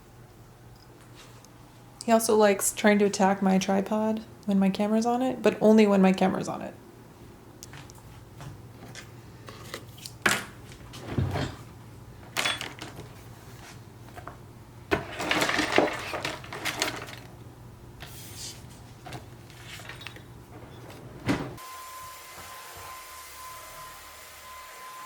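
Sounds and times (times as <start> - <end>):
objects being handled and moved: 7.6 - 17.4, 18.0 - 21.6.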